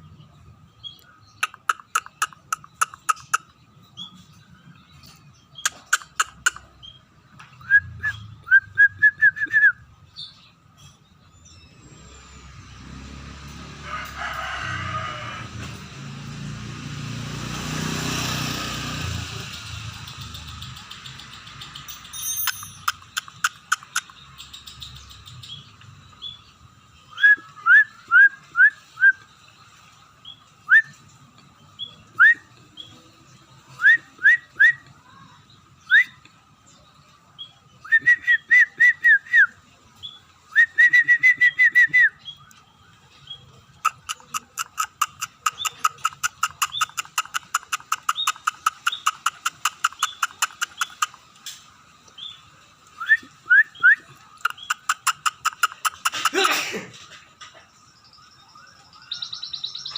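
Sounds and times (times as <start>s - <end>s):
bird whistled chirps: 7.6s - 10.4s, 27.0s - 29.3s, 30.6s - 31.1s, 31.8s - 32.8s, 33.7s - 34.9s, 35.8s - 36.2s, 37.7s - 42.6s, 53.0s - 56.0s, 58.0s - 59.9s
bird clicking notes and whistles: 20.8s - 25.0s, 40.5s - 42.6s, 43.8s - 51.6s, 52.9s - 56.2s.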